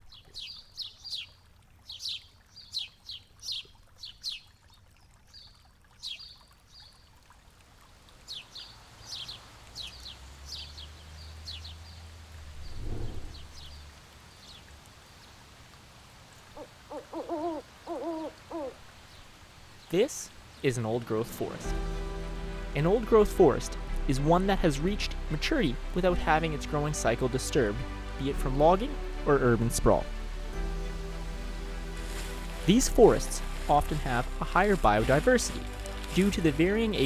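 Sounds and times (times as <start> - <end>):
birds chirping: 8.3 - 14.6, 16.6 - 31.0
low rumble: 12.4 - 13.9.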